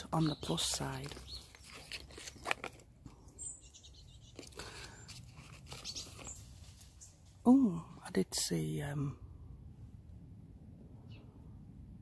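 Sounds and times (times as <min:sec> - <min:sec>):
faint clicks and rustles: 0:00.6 - 0:03.4, 0:04.2 - 0:07.4
high bird chirps: 0:03.4 - 0:04.7.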